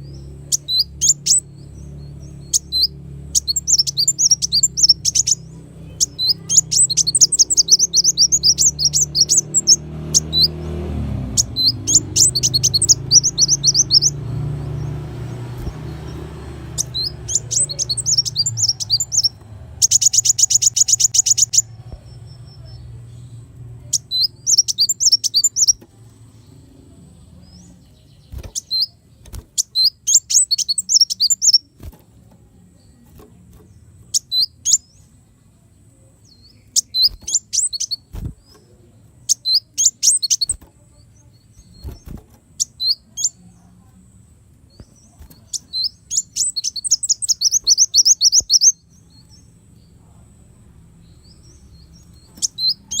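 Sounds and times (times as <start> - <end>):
fast bird trill: 0.0 - 10.6, 11.2 - 21.8, 23.9 - 25.8, 28.2 - 31.8, 34.1 - 35.0, 36.6 - 38.5, 39.3 - 40.6, 45.0 - 49.0, 51.4 - 53.0
bird chirping high and sharp: 0.0 - 22.8, 23.9 - 25.8, 27.6 - 31.8, 33.5 - 35.0, 36.3 - 38.6, 39.3 - 40.7, 41.3 - 43.4, 44.8 - 49.5, 51.0 - 53.0.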